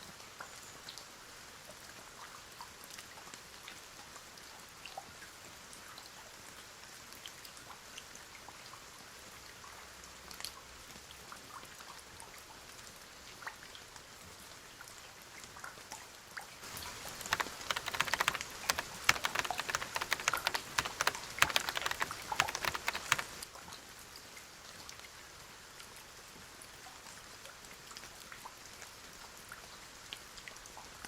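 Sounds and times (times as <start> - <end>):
soft steady rain: 0.0 - 15.4, 24.2 - 31.0
scattered drips: 16.7 - 23.5.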